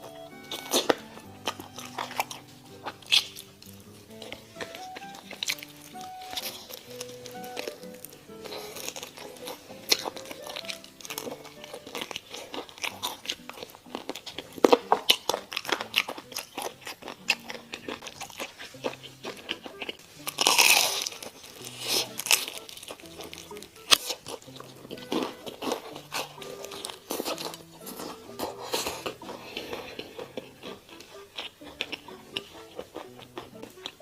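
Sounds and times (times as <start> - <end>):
crunching bites of fried chicken: 0.0 - 34.0.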